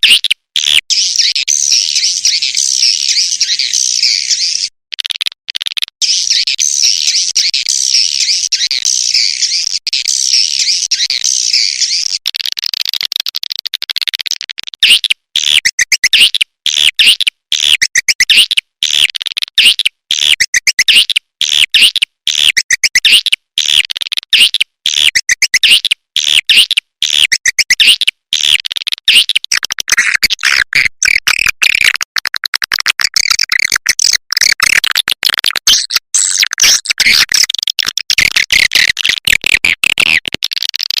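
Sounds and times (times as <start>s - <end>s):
swiftlet calls twittering: 0.0s - 4.7s.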